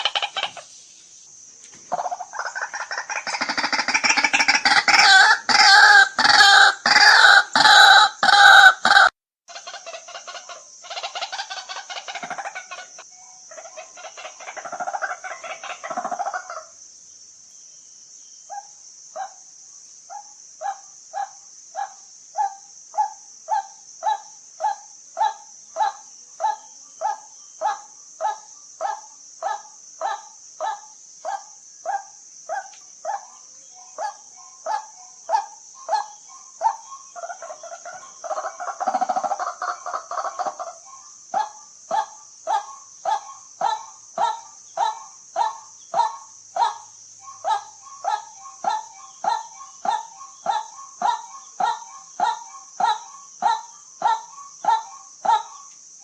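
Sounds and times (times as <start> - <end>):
waterhen calling: 0.0 - 0.8, 1.9 - 16.7, 32.6 - 55.7.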